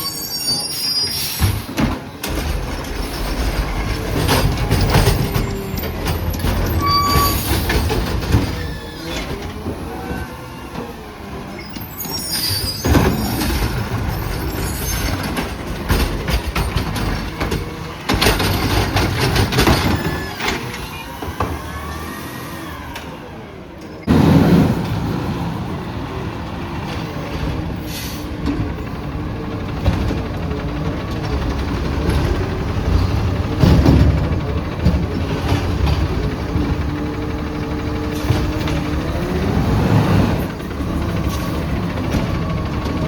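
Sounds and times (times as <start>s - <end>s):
garbage truck engine and hydraulics: 0.0s - 43.0s.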